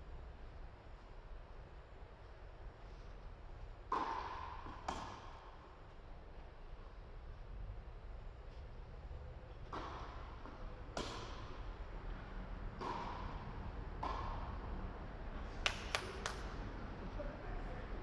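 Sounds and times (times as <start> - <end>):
racket hitting ball: 3.9 - 5.5, 9.7 - 11.6, 12.7 - 14.6.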